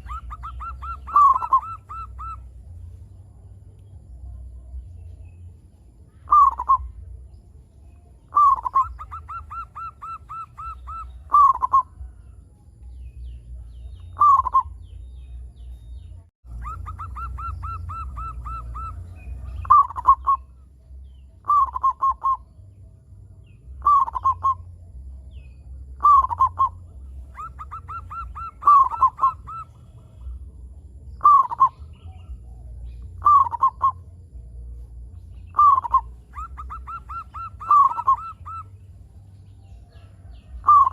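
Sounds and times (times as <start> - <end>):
dove cooing: 0.0 - 2.7, 6.2 - 7.0, 8.3 - 12.1, 14.1 - 14.8, 16.5 - 20.6, 21.4 - 22.5, 23.8 - 24.7, 25.9 - 30.6, 31.2 - 34.1, 35.5 - 38.8, 39.8 - 40.9
low rumble: 0.0 - 9.2, 10.8 - 40.9.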